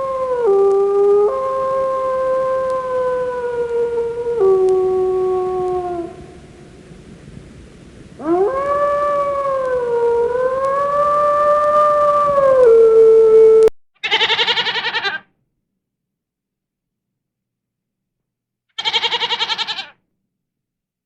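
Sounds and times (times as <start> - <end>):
dog howling: 0.0 - 6.2, 8.2 - 15.2, 18.8 - 19.9
animal bleat: 14.0 - 15.2, 18.8 - 20.0.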